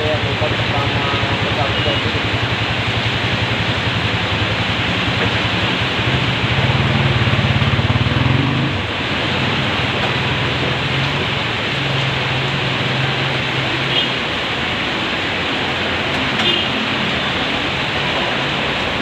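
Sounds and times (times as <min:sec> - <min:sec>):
heavy rain drumming: 0:00.0 - 0:19.0
vehicle engine humming: 0:00.0 - 0:19.0.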